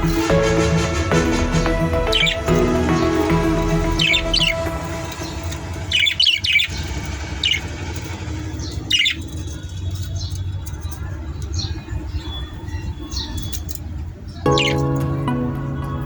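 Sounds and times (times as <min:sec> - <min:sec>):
budgerigars chirping: 0:00.0 - 0:15.2.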